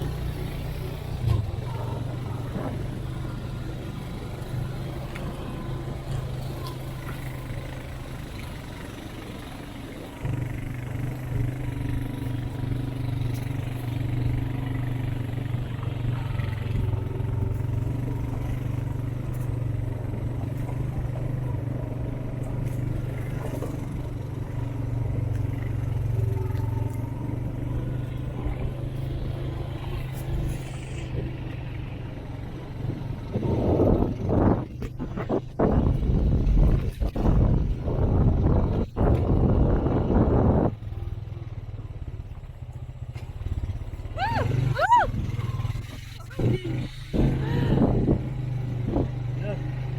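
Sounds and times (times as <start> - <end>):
off-road vehicle engine: 0.0 - 49.9.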